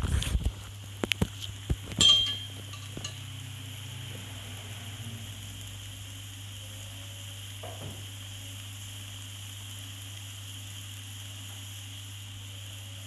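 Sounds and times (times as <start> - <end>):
constant low hum: 0.0 - 13.0
food sizzling in a wok: 0.0 - 13.0.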